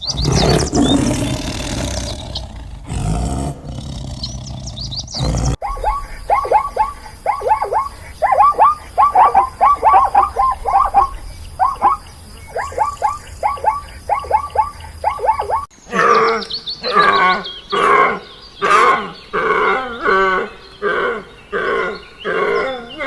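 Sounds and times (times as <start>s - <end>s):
animal low roar: 0.0s - 5.6s
short falling animal calls: 5.6s - 15.7s.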